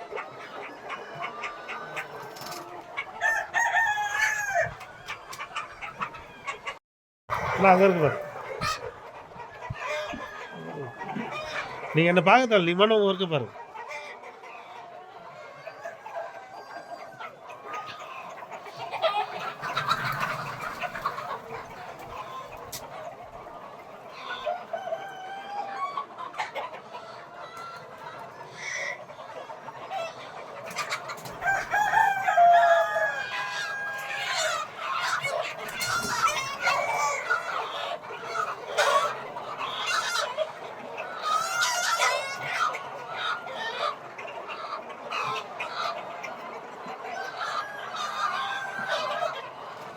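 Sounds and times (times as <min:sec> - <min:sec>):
roosters crowing: 0:00.0 - 0:06.6, 0:07.3 - 0:09.0, 0:09.7 - 0:12.0, 0:24.1 - 0:26.1, 0:30.8 - 0:44.0, 0:47.1 - 0:49.5
chickens clucking: 0:00.0 - 0:49.9.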